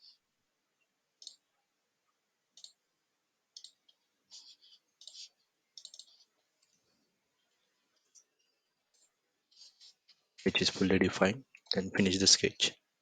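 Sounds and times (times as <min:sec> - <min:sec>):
computer mouse clicks: 0:01.2 - 0:01.5, 0:02.5 - 0:02.8, 0:03.5 - 0:06.8.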